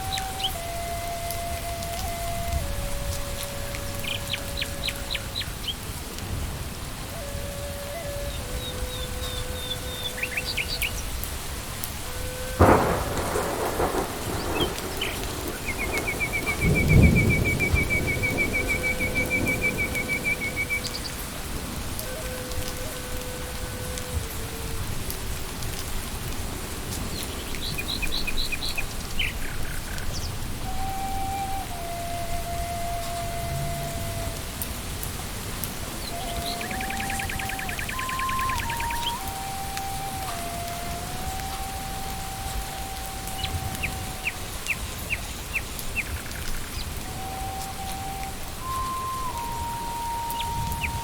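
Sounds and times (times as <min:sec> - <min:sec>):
soft sustained music tone: 0:00.0 - 0:06.3, 0:07.0 - 0:27.0, 0:30.6 - 0:45.4, 0:46.0 - 0:51.0
rain falling on leaves: 0:00.0 - 0:51.0
bird calling descending notes: 0:07.2 - 0:11.3, 0:12.0 - 0:24.8, 0:30.6 - 0:34.7, 0:35.9 - 0:45.2, 0:46.0 - 0:51.0
bird chirping: 0:08.3 - 0:11.1, 0:12.6 - 0:21.2, 0:36.0 - 0:40.0.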